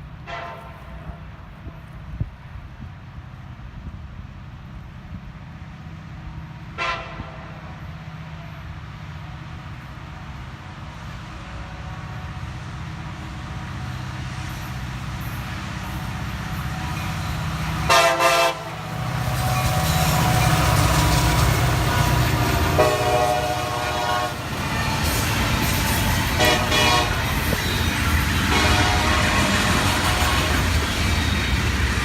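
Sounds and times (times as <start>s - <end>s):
diesel locomotive engine rumble: 0.0s - 32.0s
train air horn blasts: 0.2s - 1.2s, 6.8s - 7.8s, 17.8s - 20.3s, 21.5s - 30.8s.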